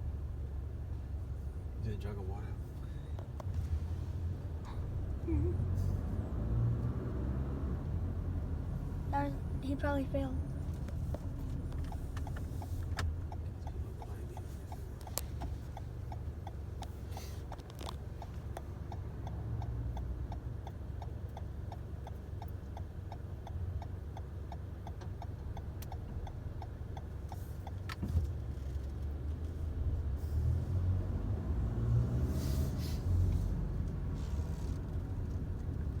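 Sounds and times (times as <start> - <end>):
light even ticking: 8.7 - 29.5.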